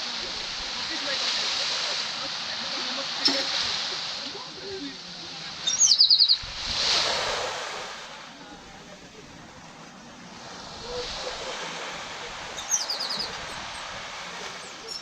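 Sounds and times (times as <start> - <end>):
small waves washing onto beach: 0.0 - 15.0
bird chirping: 5.7 - 6.5, 12.6 - 13.6.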